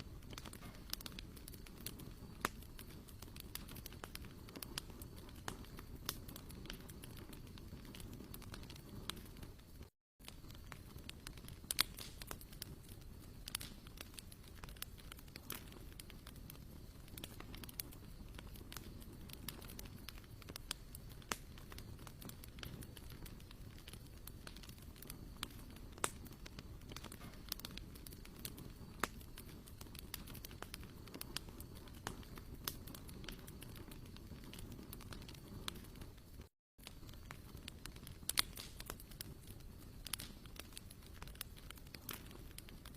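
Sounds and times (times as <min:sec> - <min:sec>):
campfire crackling and popping: 0:00.0 - 0:42.9.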